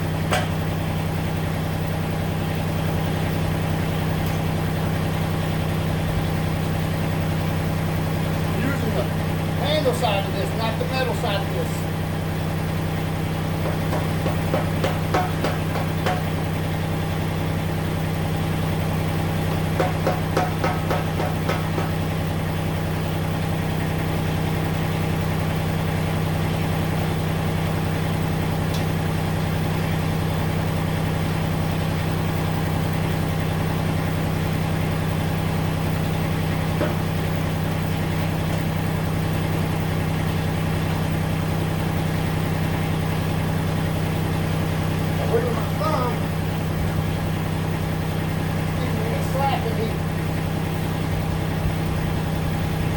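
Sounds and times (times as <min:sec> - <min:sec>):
tractor diesel engine idling: 0:00.0 - 0:52.9.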